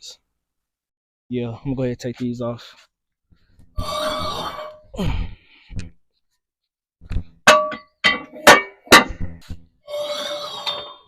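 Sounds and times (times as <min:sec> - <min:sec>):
metal weight plates clanking: 0:07.5 - 0:09.2.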